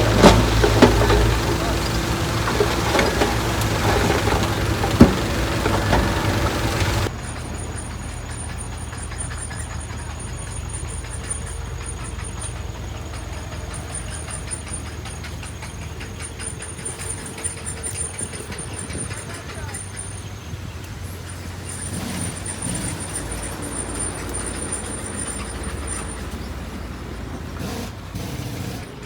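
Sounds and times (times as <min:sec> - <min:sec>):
loud metal clank: 0:00.0 - 0:07.1
diesel machinery engine running: 0:00.0 - 0:29.0.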